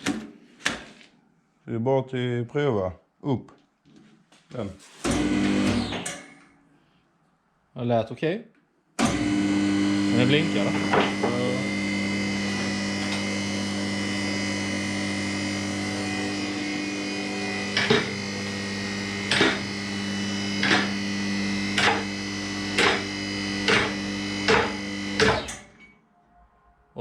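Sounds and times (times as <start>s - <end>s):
hydraulic pump motor humming: 5.0s - 6.2s, 9.0s - 25.8s.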